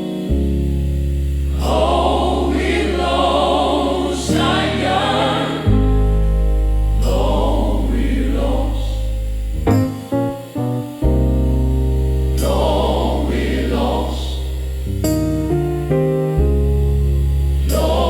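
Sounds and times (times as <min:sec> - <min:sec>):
long-held low chords: 0:00.0 - 0:18.0
gospel choir singing: 0:01.5 - 0:09.3, 0:12.3 - 0:14.7, 0:17.6 - 0:18.0.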